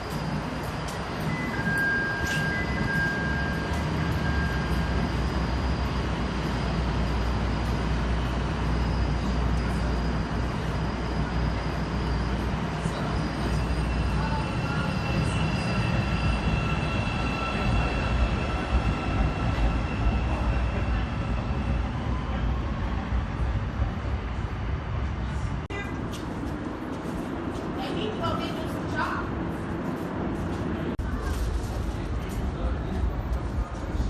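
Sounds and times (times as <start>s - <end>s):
wheel squeal: 0.0s - 22.3s
train rumbling on rails: 0.0s - 34.0s.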